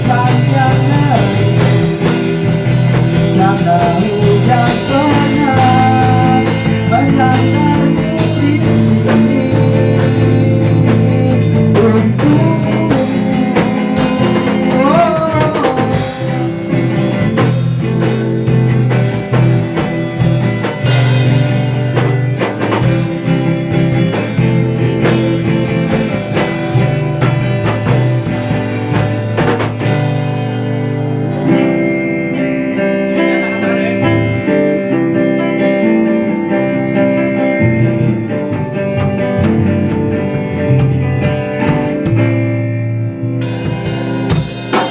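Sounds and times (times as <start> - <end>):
instrumental guitar band music: 0.0 - 44.9
drum hits: 17.2 - 30.4, 37.6 - 42.6.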